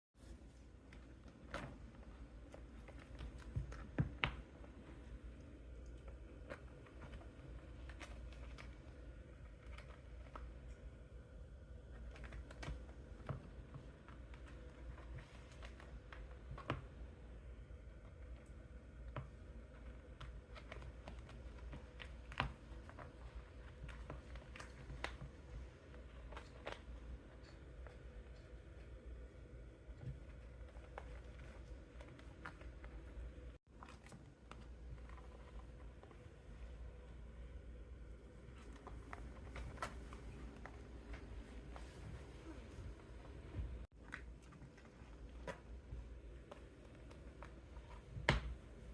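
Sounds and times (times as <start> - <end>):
kitten tapping and scuffing shoes: 0.8 - 5.3, 18.8 - 28.4, 38.5 - 48.9.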